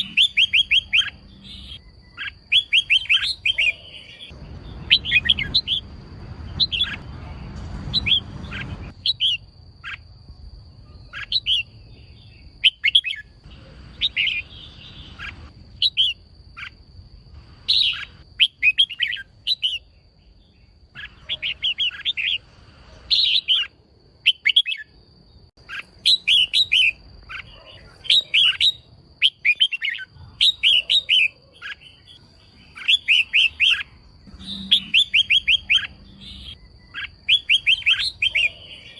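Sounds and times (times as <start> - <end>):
bird chirping in bursts: 0.0 - 38.9
low rumble: 4.3 - 9.0.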